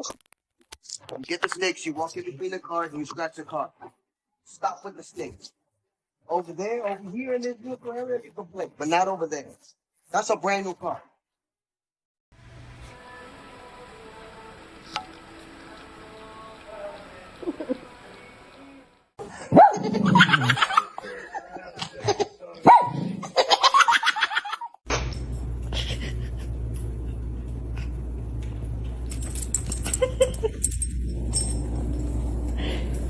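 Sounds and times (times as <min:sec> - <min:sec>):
person laughing: 0:17.4 - 0:18.0, 0:19.2 - 0:22.4, 0:25.6 - 0:26.7, 0:29.8 - 0:30.8
low hum: 0:24.9 - 0:33.0.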